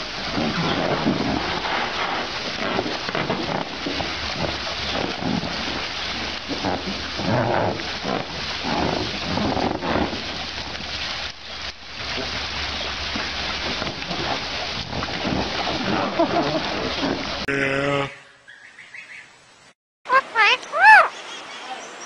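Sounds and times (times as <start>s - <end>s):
hose water splashing: 0.0s - 17.5s.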